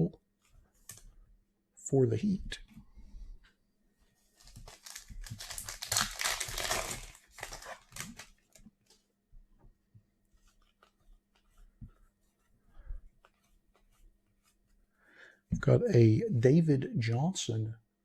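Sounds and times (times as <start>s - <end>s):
plastic wrapper crinkling and tearing: 4.4s - 8.7s
cards ticking and rustling: 4.4s - 9.1s, 10.4s - 12.0s.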